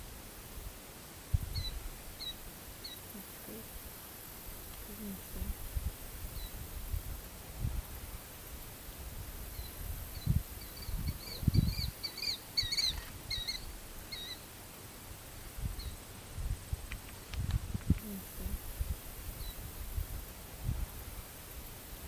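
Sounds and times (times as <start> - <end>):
bird chirping: 9.6 - 14.4.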